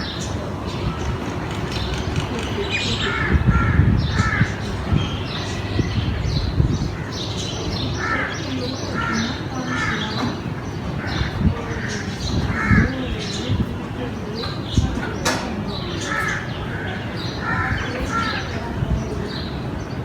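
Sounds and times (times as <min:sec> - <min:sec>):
crows cawing: 0:00.9 - 0:05.2, 0:07.0 - 0:10.4, 0:11.0 - 0:13.2, 0:16.0 - 0:18.6.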